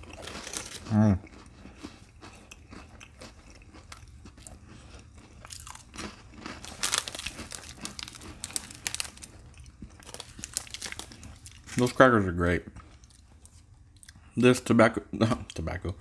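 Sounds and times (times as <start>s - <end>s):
person chewing crunchy cracker: 0.0s - 12.0s.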